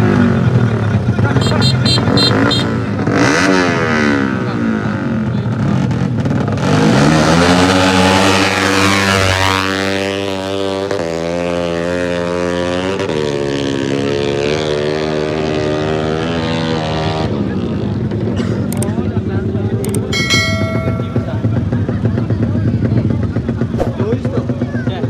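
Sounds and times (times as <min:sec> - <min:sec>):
racing motorcycle engines revving: 0:00.0 - 0:25.0.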